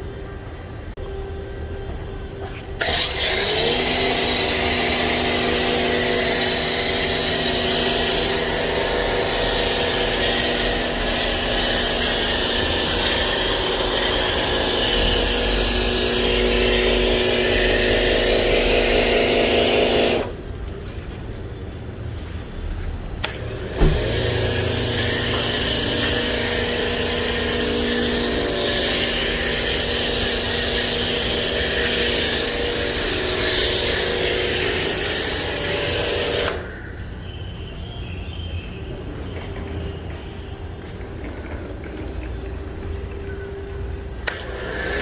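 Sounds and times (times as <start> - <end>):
pressure washer motor whine: 1.9 - 20.4, 23.2 - 36.8, 39.3 - 45.0
foam spray hissing: 5.0 - 20.4, 23.8 - 36.6.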